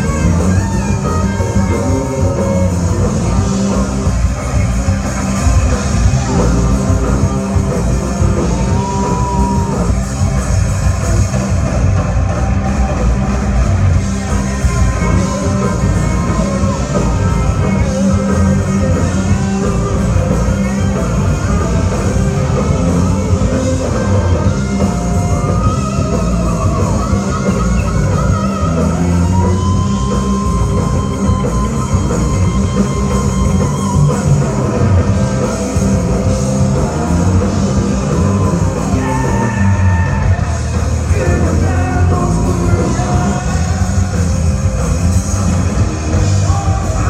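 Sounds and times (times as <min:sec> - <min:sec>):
drum kit: 0:00.0 - 0:47.0
electric guitar: 0:00.0 - 0:47.0
loud rock music: 0:00.0 - 0:47.0
person singing: 0:36.6 - 0:44.8.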